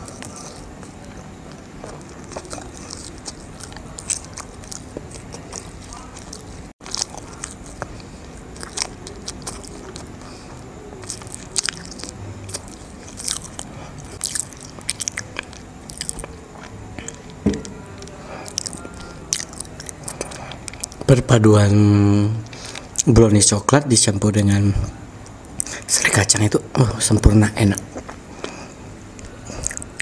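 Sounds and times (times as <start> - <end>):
mouth chewing soft food: 0.0 - 21.1, 27.8 - 30.0.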